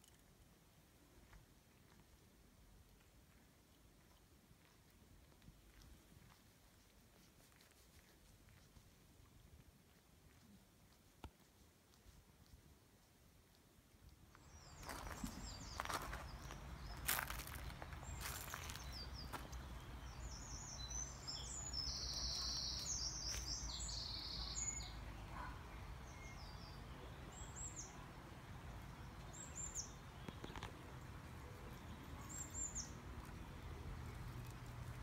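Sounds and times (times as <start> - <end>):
small birds chirping: 9.9 - 35.0.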